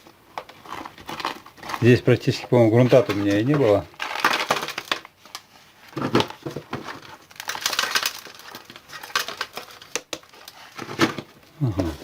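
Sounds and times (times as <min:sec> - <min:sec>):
soil and roots rustling: 0:00.4 - 0:06.0.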